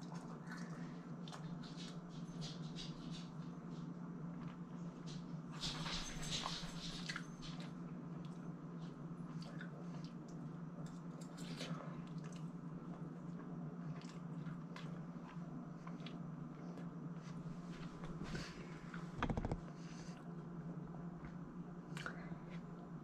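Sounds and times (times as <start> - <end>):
steady low hum: 0.0 - 23.0
person chewing meat: 12.1 - 17.0.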